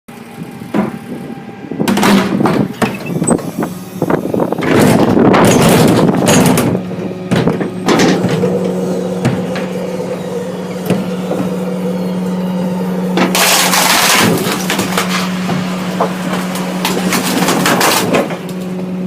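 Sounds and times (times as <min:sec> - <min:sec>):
truck compactor crunching: 0:00.1 - 0:19.0
truck engine running: 0:00.1 - 0:19.0
wood cracking and splintering: 0:13.0 - 0:19.0.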